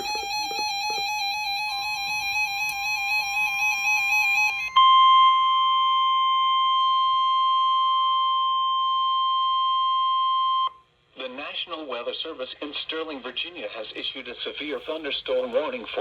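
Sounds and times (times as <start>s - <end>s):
steady warning alarm tone: 0.0s - 10.8s.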